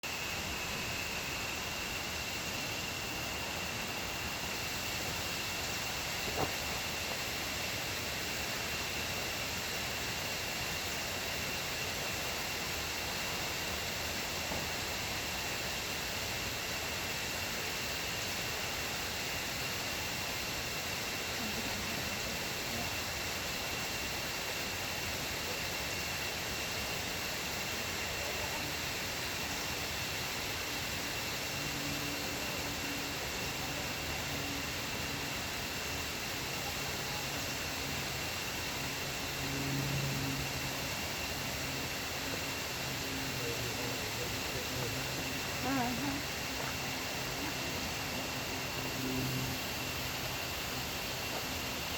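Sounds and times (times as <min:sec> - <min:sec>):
high-pitched insect drone: 0:00.0 - 0:51.9.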